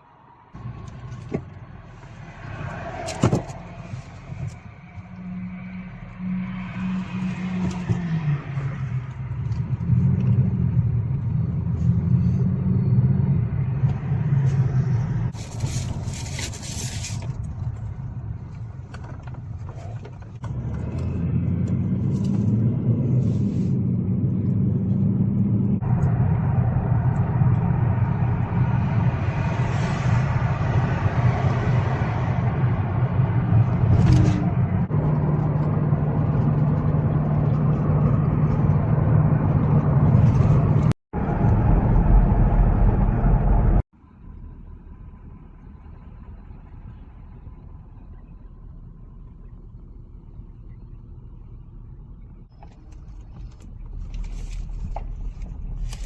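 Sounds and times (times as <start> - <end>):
car engine hum: 0.0 - 56.0
road noise: 0.0 - 56.0.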